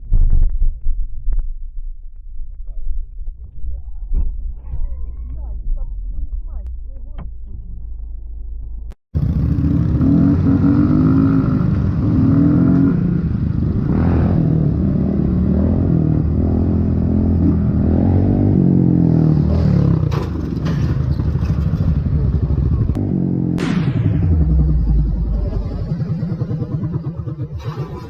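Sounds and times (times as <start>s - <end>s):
vehicle engine revving: 9.2s - 28.0s.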